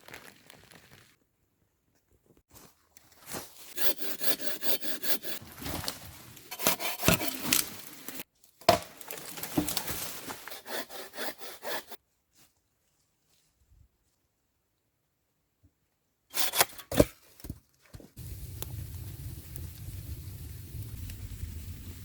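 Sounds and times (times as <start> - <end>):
hand saw cutting wood: 3.7 - 5.4, 6.5 - 8.2, 9.6 - 12.0, 16.3 - 17.1.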